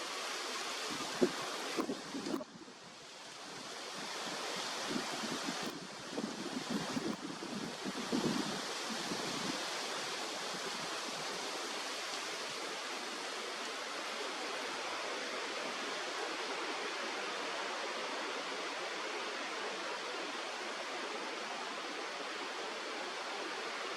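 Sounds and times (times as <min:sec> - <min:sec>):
stream rushing: 0:00.0 - 0:23.9
wind buffeting microphone: 0:00.8 - 0:02.7, 0:04.0 - 0:09.7.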